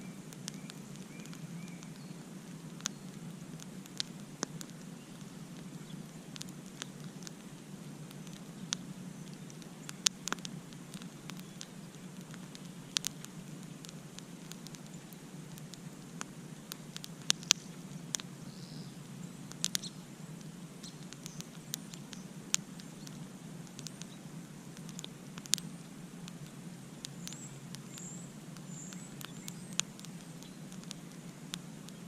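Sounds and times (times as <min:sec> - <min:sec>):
faint high chirps: 0:00.0 - 0:03.2, 0:17.3 - 0:23.2, 0:27.1 - 0:32.0
campfire crackling and popping: 0:00.0 - 0:32.0
low rumble of flames: 0:00.0 - 0:32.0.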